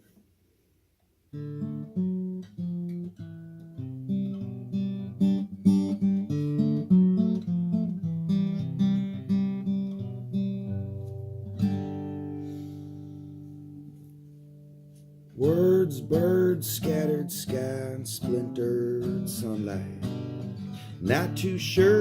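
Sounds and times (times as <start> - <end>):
acoustic guitar plucking: 1.3 - 22.0.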